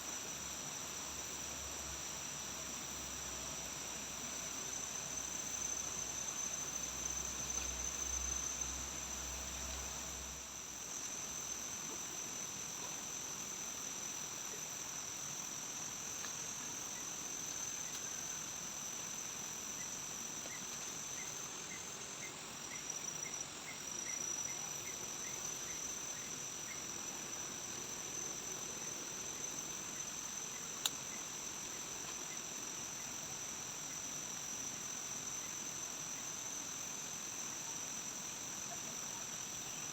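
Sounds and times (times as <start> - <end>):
forest insects chorus: 0.0 - 39.9
insect ticking: 15.8 - 33.2.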